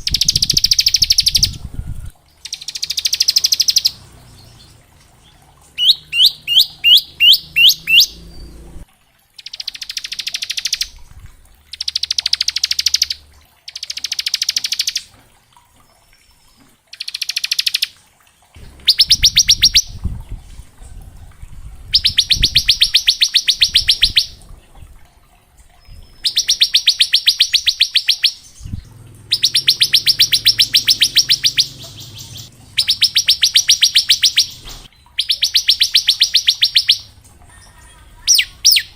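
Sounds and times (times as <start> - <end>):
bird fast trilling: 0.0 - 8.8, 18.8 - 20.1, 21.9 - 24.4, 25.9 - 38.9
bird whistled notes: 5.8 - 8.6, 21.9 - 24.4, 29.3 - 37.1.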